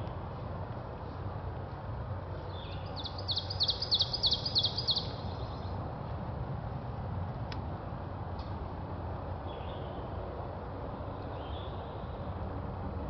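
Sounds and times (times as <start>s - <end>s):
low outdoor rumble: 0.0s - 13.0s
songbird singing: 2.4s - 5.8s, 9.4s - 10.2s, 10.9s - 12.3s.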